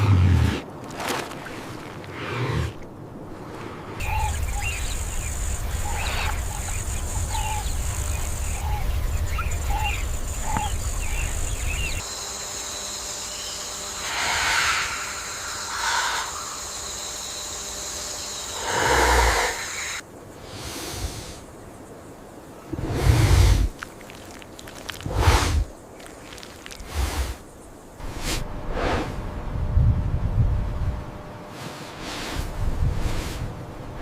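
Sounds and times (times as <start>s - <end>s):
bird-like chirps: 4.0s - 12.0s
steady high hiss: 4.0s - 28.4s.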